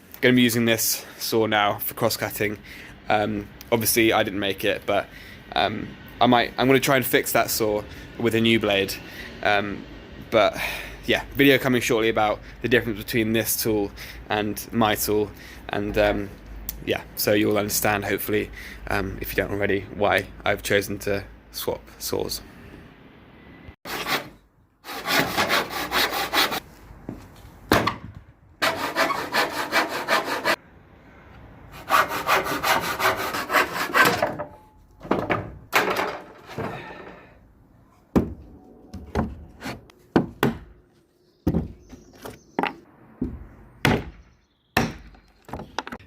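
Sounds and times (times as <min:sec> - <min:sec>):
hand saw cutting wood: 0:23.9 - 0:26.6, 0:28.6 - 0:30.6, 0:31.7 - 0:34.4
sharp wooden knocks: 0:40.1 - 0:40.7, 0:41.4 - 0:41.8, 0:42.6 - 0:46.0.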